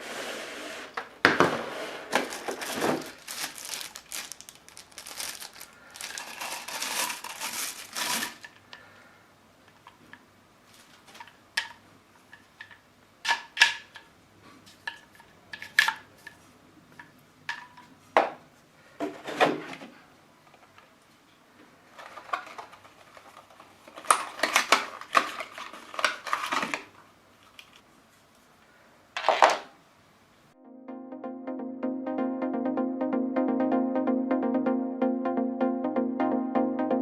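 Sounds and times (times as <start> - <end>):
rustling: 0.0 - 8.6, 21.8 - 28.5
plastic parts clicking and knocking: 10.8 - 14.1, 14.7 - 18.4, 21.9 - 27.8, 29.2 - 29.7.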